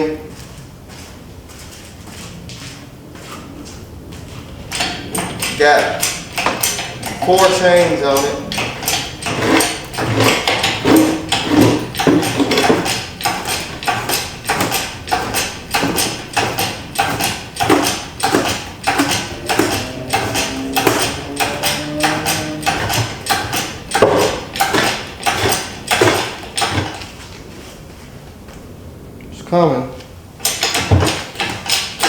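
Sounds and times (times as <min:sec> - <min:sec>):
chains clanking and rattling: 0:04.6 - 0:27.1, 0:30.4 - 0:32.0.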